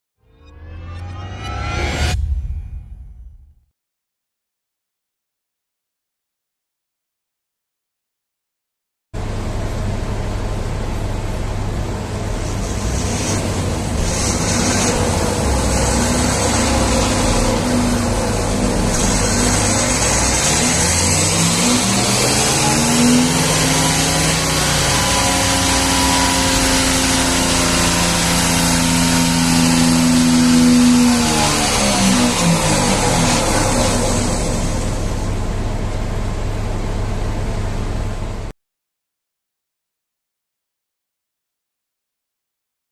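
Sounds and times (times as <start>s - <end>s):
diesel engine running under load: 9.2s - 38.5s.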